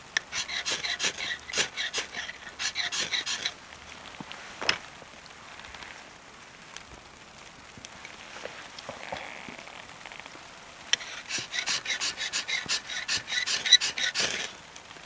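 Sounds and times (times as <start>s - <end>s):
rhythmic scraping strokes: 0.3s - 3.6s, 11.0s - 14.6s.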